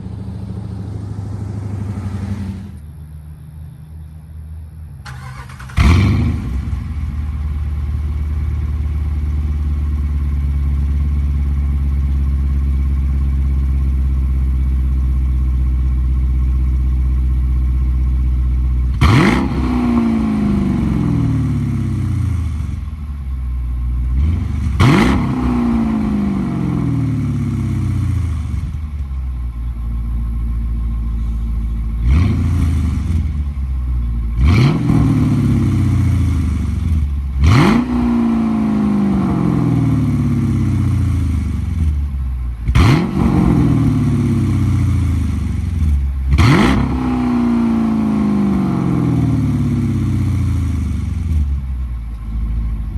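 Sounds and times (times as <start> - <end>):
engine revving: 0.0 - 2.8, 5.1 - 7.1, 18.9 - 22.8, 24.2 - 28.8, 32.0 - 33.4, 34.4 - 42.0, 42.6 - 51.5
car engine starting and idling: 0.0 - 52.9.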